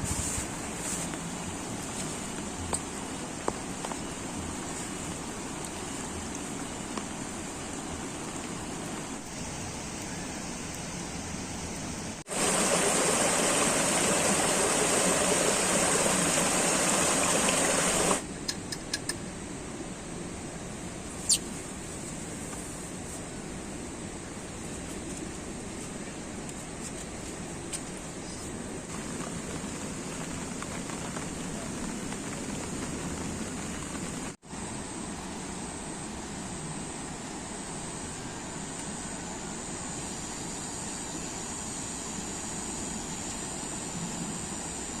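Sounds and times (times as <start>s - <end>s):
heavy rain: 12.1s - 18.2s, 28.8s - 34.4s
running water: 12.2s - 18.2s.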